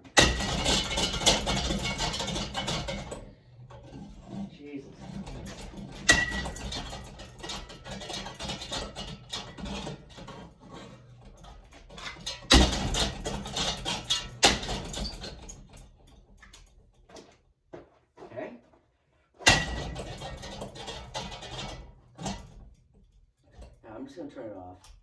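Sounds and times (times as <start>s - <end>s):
ceiling fan being smashed: 0.0s - 4.0s, 5.0s - 16.1s, 19.4s - 22.7s.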